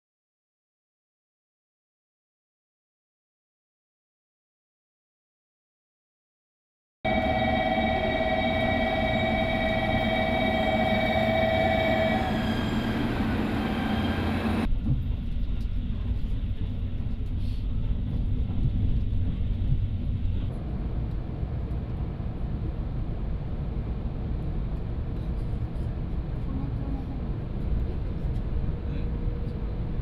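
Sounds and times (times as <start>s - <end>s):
train motor whine: 7.1s - 14.7s
muffled train rumble: 7.1s - 30.0s.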